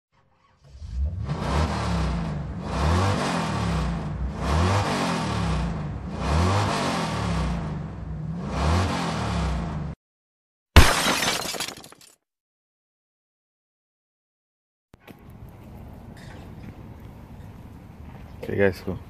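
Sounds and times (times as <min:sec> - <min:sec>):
car engine revving: 0:00.4 - 0:10.0.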